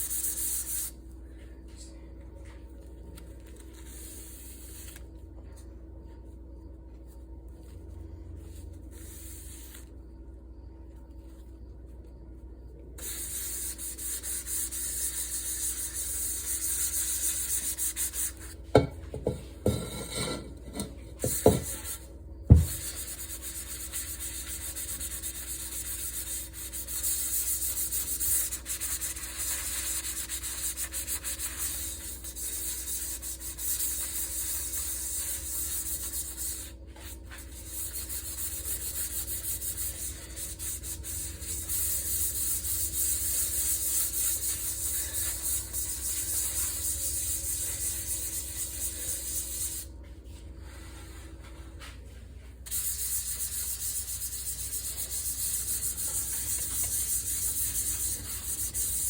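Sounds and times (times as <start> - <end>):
pan being scrubbed: 13.0 - 49.3.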